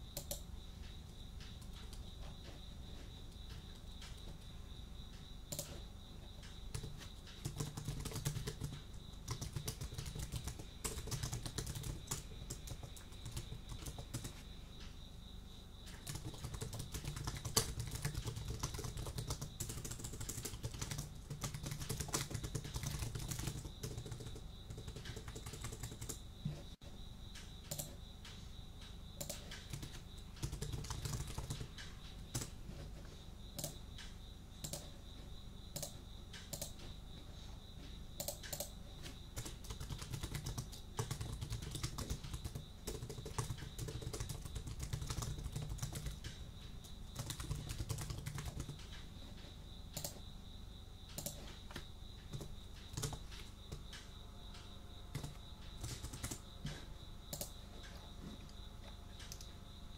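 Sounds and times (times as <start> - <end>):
cricket trill: 0.0 - 59.9
typing on computer keyboard: 0.1 - 0.5, 1.4 - 2.0, 3.5 - 4.4, 5.5 - 5.8, 6.4 - 14.4, 15.8 - 26.2, 27.4 - 28.0, 29.2 - 32.6, 33.5 - 35.0, 35.7 - 36.9, 38.2 - 49.1, 49.9 - 50.2, 51.1 - 54.1, 55.1 - 58.0, 59.2 - 59.5.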